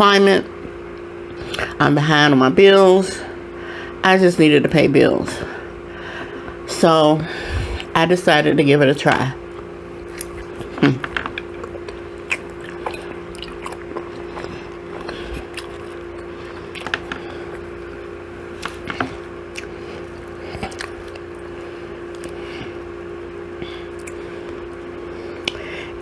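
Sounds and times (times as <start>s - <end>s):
steady low hum: 0.0s - 26.0s
person biting and chewing: 10.1s - 17.7s, 18.5s - 22.8s, 23.8s - 25.7s
wet mouth clicks: 11.2s - 17.2s, 25.4s - 25.6s.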